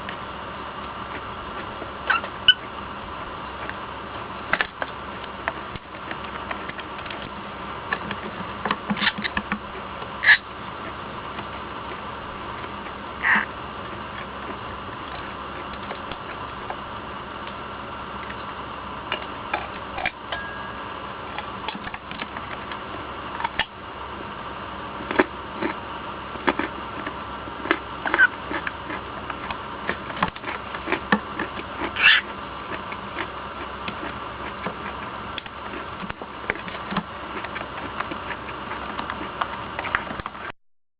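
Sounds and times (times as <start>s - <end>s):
background hum and hiss: 0.0s - 40.6s.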